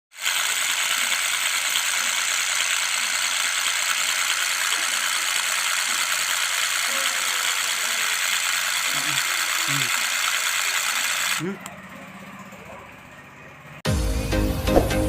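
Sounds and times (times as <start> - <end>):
small motor running: 0.1 - 13.8.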